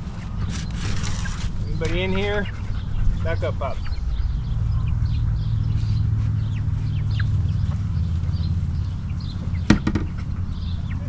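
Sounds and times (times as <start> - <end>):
chicks peeping: 0.0 - 11.0
hen clucking: 0.0 - 11.0
steady low rumble: 0.0 - 11.0.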